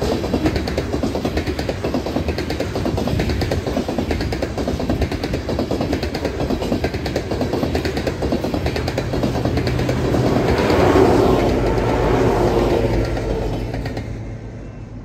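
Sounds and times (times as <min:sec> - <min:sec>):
train wheels clattering on rails: 0:00.0 - 0:14.8.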